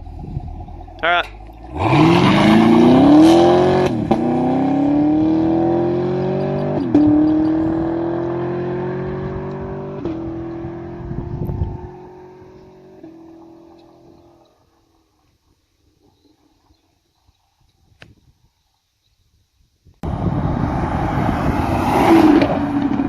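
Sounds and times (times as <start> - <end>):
car engine accelerating hard: 0.0 - 14.5, 20.0 - 23.0.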